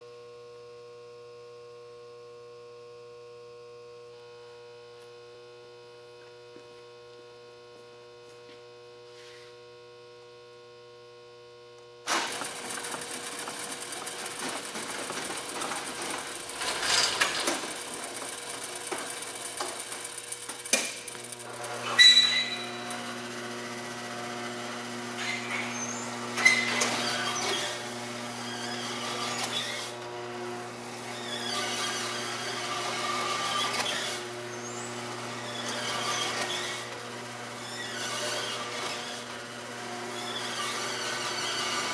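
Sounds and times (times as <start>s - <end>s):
steady motor tone: 0.1s - 41.9s
machine rattling and clicking: 12.1s - 23.1s.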